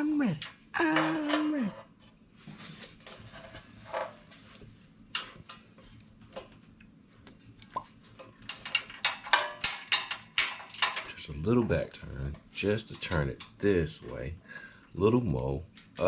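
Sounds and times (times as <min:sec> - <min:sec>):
hand tools clicking on metal: 0:08.2 - 0:11.2, 0:12.8 - 0:13.7.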